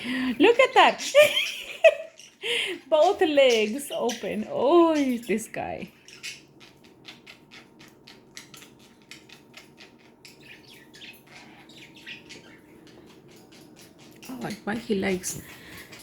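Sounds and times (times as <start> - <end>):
budgerigars chirping: 0.4 - 5.3, 5.9 - 14.5
budgerigars clicking: 3.0 - 15.2.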